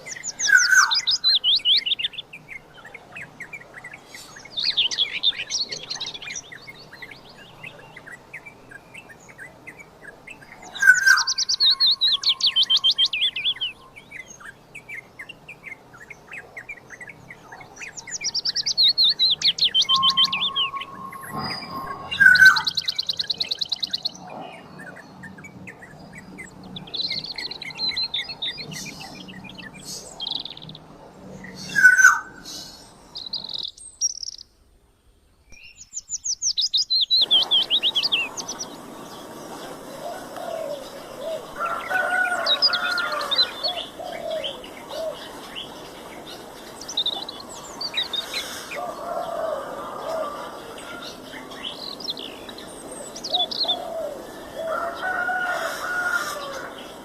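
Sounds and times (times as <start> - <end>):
loud high bird chirps: 0.0 - 30.8, 35.5 - 49.4
lower bird calls: 0.0 - 34.5, 35.5 - 57.0
birds calling: 0.0 - 34.6, 35.5 - 57.0.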